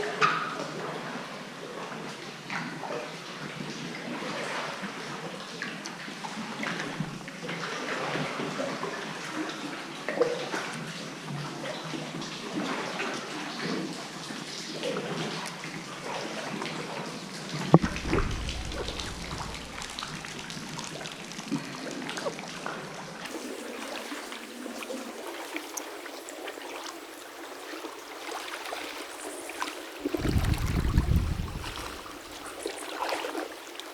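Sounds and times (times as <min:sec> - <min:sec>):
water splashing around kayak: 0:17.7 - 0:21.3, 0:23.3 - 0:33.9
sharp knock: 0:17.8 - 0:20.4.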